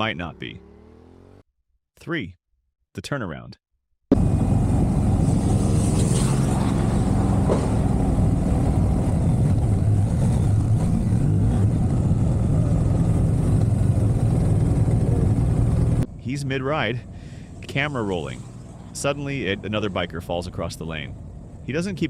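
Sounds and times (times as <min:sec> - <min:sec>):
wind and road noise: 0:04.1 - 0:22.0
motorcycle engine running: 0:09.4 - 0:16.0.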